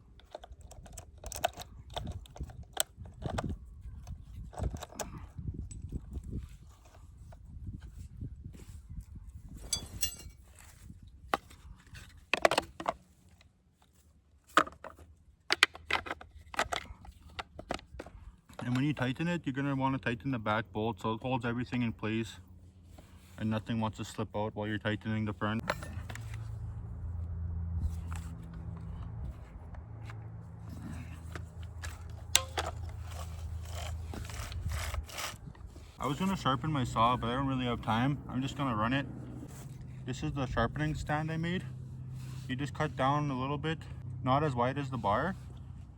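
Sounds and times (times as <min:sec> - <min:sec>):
chainsaw parts clicking and knocking: 0:00.1 - 0:03.6, 0:14.6 - 0:18.9, 0:31.2 - 0:35.4
low hum: 0:09.6 - 0:10.4
clicks and rattles of chainsaw chain: 0:09.7 - 0:10.4.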